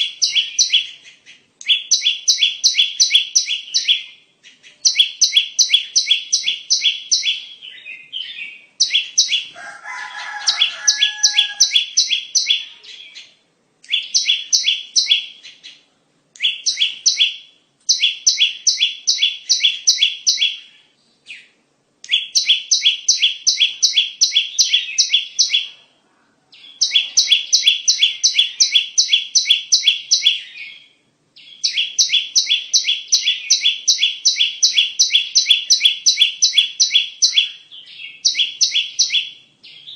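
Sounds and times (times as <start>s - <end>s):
lower bird call: 0.0s - 13.2s
bird sharp high chirps: 0.0s - 25.9s, 26.6s - 39.9s.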